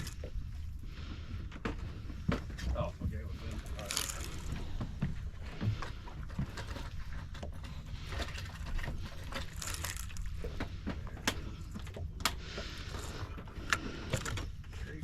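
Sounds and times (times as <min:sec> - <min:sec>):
low rumble of wind and water: 0:00.0 - 0:15.0.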